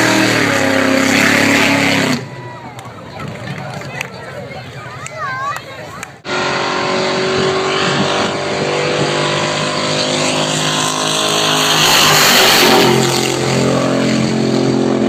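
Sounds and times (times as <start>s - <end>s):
loud engine passing by: 0.0s - 2.5s, 6.2s - 15.0s.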